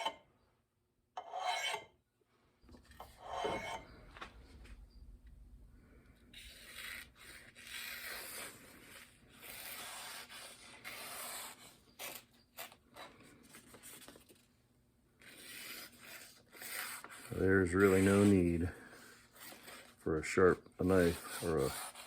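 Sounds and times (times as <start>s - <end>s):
honing rod scraping axe edge: 0.0s - 0.2s, 1.2s - 1.9s, 2.9s - 3.9s.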